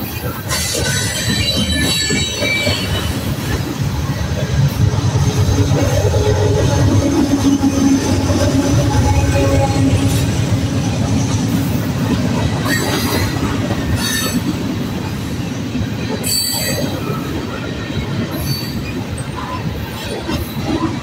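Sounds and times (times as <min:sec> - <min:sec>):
train wheels rumbling on rail: 0:00.0 - 0:21.0
high-pitched wheel squeals: 0:00.5 - 0:03.3.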